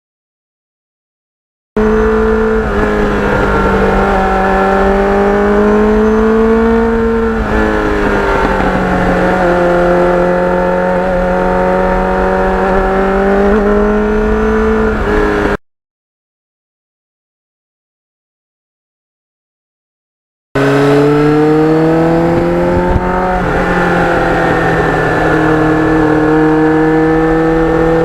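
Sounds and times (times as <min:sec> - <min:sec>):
motorcycle engine cruising: 0:01.8 - 0:15.6, 0:20.6 - 0:28.0.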